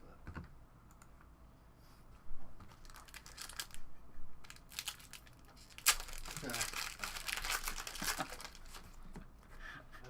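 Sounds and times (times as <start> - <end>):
wrapper crinkling and tearing: 2.7 - 3.8, 4.4 - 9.0.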